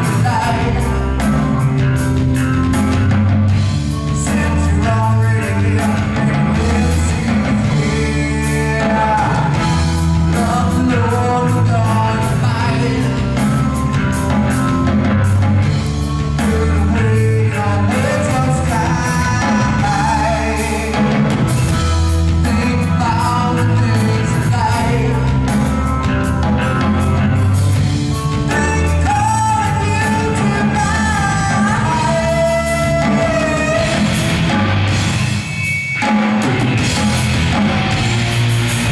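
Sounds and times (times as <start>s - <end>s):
person singing: 0.0s - 1.7s, 4.0s - 13.9s, 16.1s - 25.8s, 28.2s - 34.7s
rock band playing: 0.0s - 38.9s.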